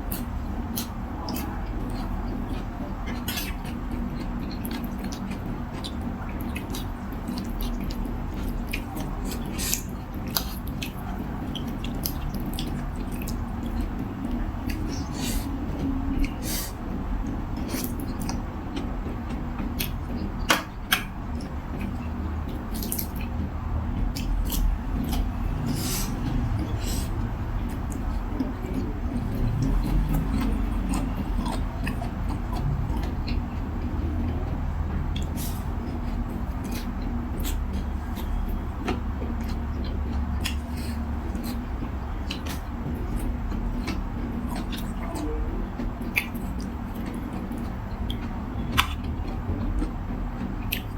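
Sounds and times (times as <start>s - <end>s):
steady low hum: 0.0s - 50.9s
wet chewing: 0.0s - 50.9s
person eating noodle soup: 0.1s - 18.4s, 24.2s - 33.4s
slurping noodles: 16.4s - 16.8s, 25.7s - 27.1s.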